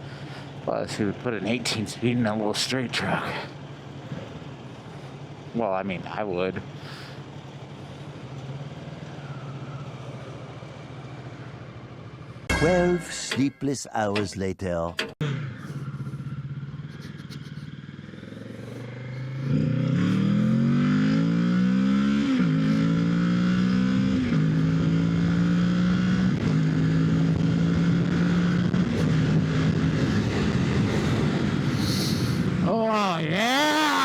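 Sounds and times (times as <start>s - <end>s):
motorcycle engine accelerating: 15.2s - 34.0s.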